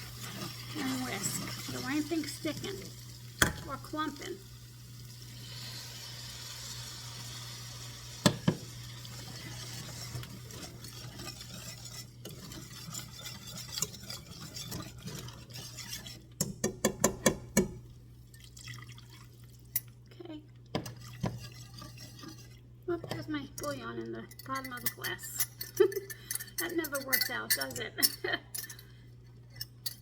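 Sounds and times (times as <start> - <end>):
wire whisk stirring in a pan: 0.0 - 19.9, 20.7 - 30.0
broth pouring: 17.9 - 19.9
metal clinking on a pan: 23.6 - 28.8.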